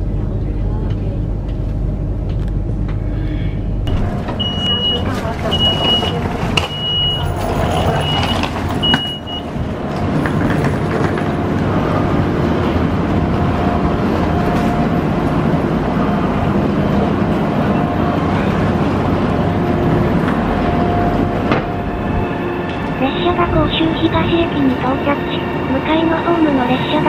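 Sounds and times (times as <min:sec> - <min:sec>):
train equipment humming: 0:00.0 - 0:27.0
train door warning beeps: 0:03.9 - 0:09.7.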